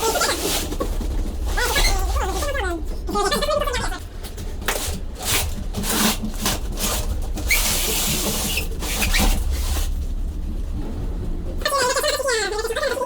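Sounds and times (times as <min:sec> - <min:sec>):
boxes scraping on floor: 0:00.0 - 0:10.0
steady low hum: 0:00.0 - 0:13.0.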